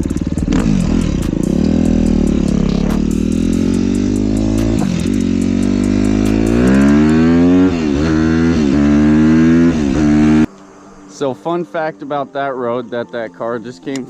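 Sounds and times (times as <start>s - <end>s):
dirt bike engine revving: 0.0s - 10.5s.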